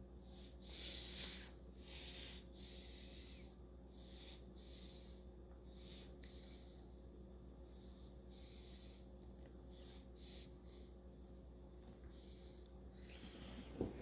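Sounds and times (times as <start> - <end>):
low electrical hum: 0.0 - 14.0
soft breaths: 0.1 - 14.0.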